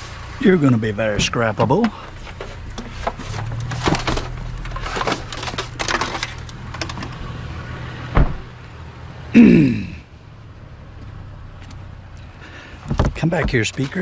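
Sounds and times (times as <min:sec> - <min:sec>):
trash clattering and scraping: 0:01.0 - 0:07.4
sharp thump: 0:08.2 - 0:08.5.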